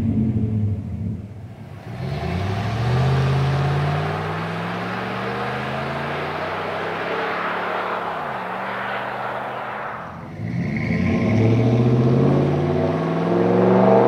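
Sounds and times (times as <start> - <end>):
truck exhaust accelerating: 0.0 - 14.0.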